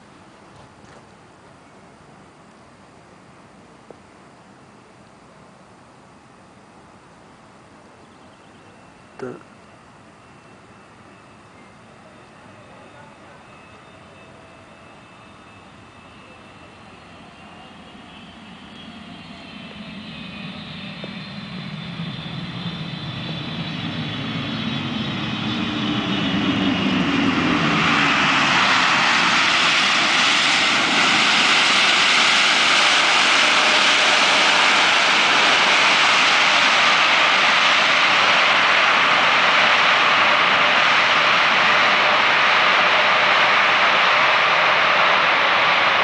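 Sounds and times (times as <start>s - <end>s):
jet engine fan whine: 0.0s - 46.0s
loud jet roar: 18.2s - 46.0s.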